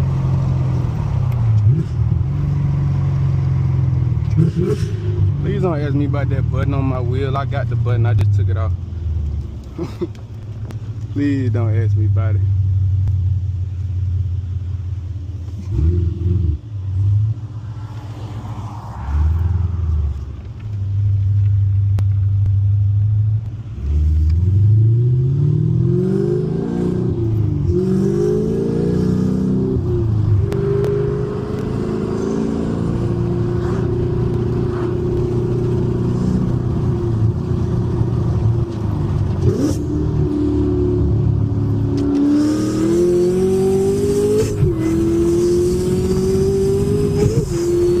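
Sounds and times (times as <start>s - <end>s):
car engine revving and accelerating: 0.0s - 8.6s, 15.5s - 20.4s, 23.7s - 48.0s.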